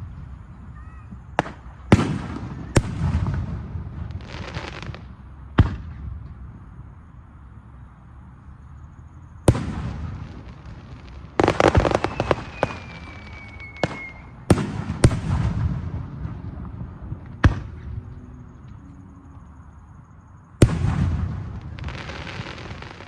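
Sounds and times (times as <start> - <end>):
fireworks bangs with echo: 1.1 - 5.0, 5.6 - 6.2, 9.4 - 18.0, 20.6 - 23.0
fireworks crackling pops: 1.1 - 6.4, 9.5 - 18.2, 20.6 - 23.0
faint falling whistle: 11.8 - 14.4.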